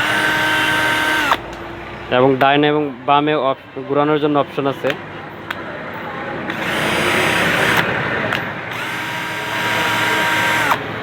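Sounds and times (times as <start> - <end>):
cordless drill motor whining: 0.0 - 1.4, 6.5 - 8.0, 8.7 - 11.0.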